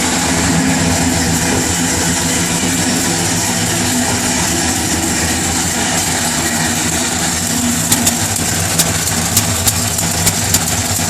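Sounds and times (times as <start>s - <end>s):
car engine idling: 0.0s - 11.0s
sharp engine tick: 5.4s - 11.0s.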